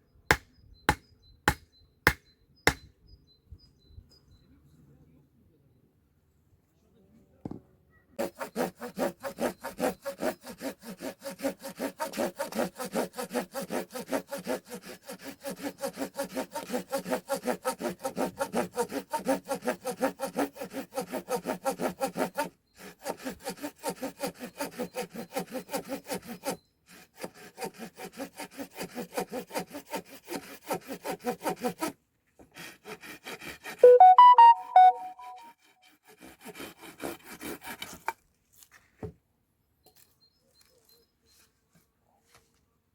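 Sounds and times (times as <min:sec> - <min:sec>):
hand saw cutting wood: 0:00.3 - 0:02.8, 0:08.2 - 0:34.0, 0:35.2 - 0:38.2
high-pitched squeak: 0:33.8 - 0:35.5.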